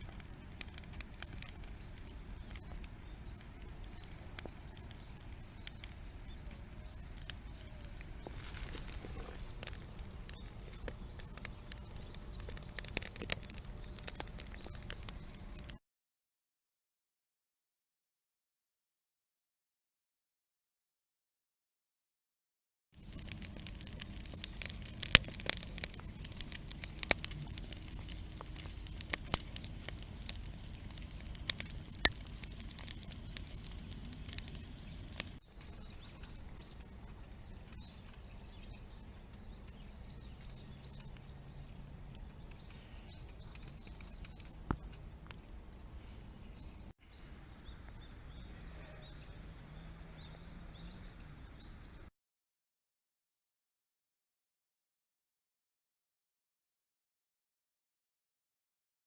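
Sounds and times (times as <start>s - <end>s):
rain patter: 0.0s - 15.1s, 23.0s - 35.4s
birds chirping faintly: 0.0s - 15.8s, 23.0s - 52.1s
sharp pops and clicks: 0.0s - 15.8s, 23.0s - 46.9s.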